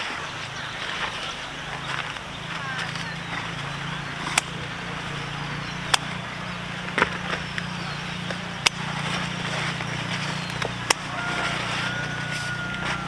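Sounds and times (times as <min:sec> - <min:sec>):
sharp clicks: 0:01.9 - 0:04.8, 0:05.8 - 0:11.1.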